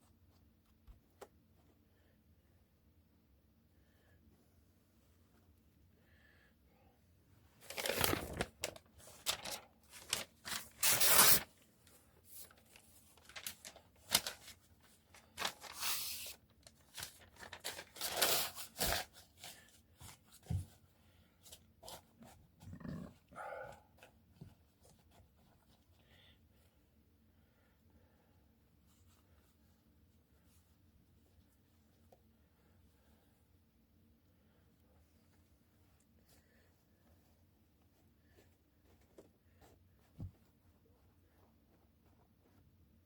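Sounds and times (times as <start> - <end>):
newspaper being torn by hand: 7.6 - 11.5, 13.2 - 14.6, 15.2 - 19.1.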